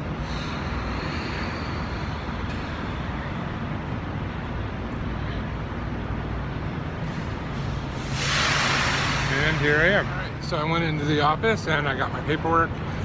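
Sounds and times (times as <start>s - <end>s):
vehicle engines rumbling: 0.0s - 13.0s
steady hiss: 7.1s - 11.2s.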